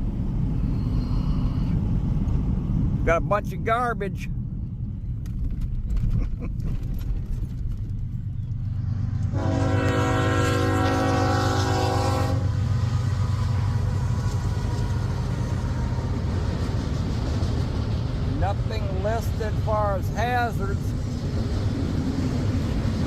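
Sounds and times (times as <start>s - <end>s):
passing train rumble: 0.0s - 23.0s
locomotive air horn blast: 9.3s - 12.6s.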